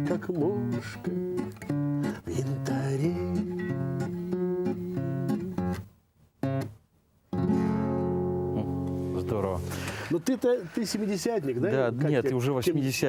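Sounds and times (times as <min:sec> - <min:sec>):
acoustic guitar strummed chords: 0:00.0 - 0:10.1.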